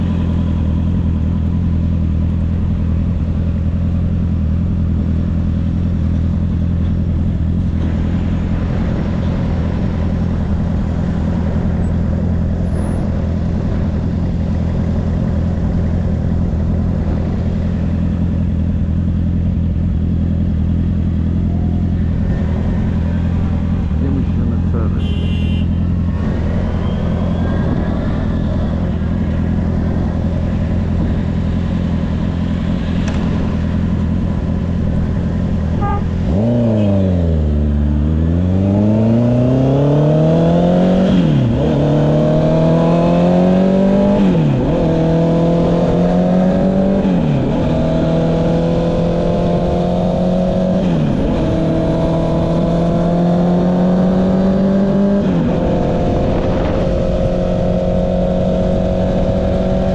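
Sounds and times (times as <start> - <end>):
motorcycle accelerating through gears: 0.0 - 59.9
motorcycle engine idling: 18.1 - 26.0.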